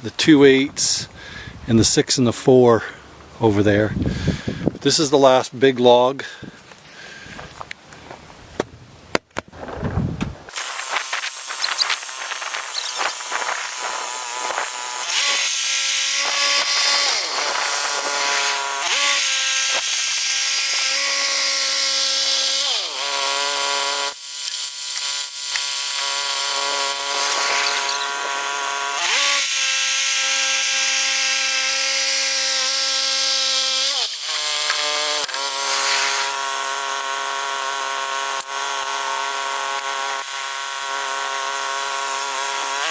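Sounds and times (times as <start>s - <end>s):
bandsaw mill sawing log: 10.5s - 42.9s.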